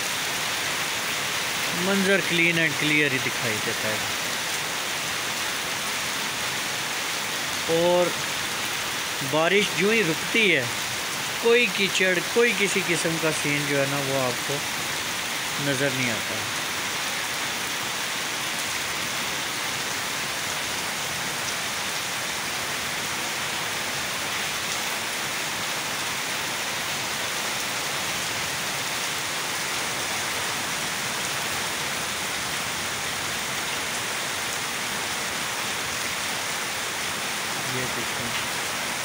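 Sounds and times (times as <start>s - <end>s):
rain on hard surfaces: 0.0s - 39.0s.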